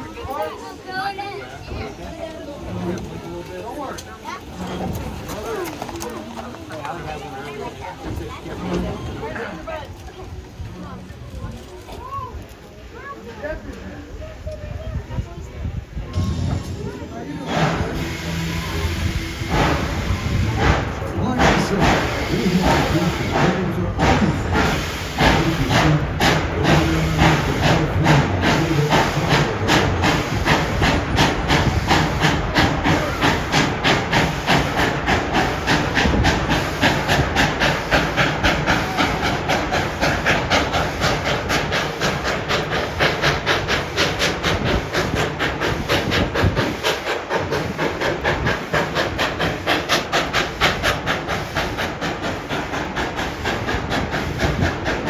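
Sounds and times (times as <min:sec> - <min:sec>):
steam locomotive exhaust chuffing: 0:00.0 - 0:55.0
steam hissing: 0:14.4 - 0:55.0.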